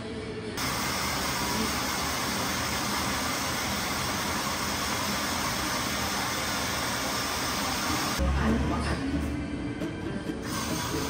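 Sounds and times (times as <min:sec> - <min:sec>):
train running: 0:00.6 - 0:08.2, 0:10.4 - 0:11.0.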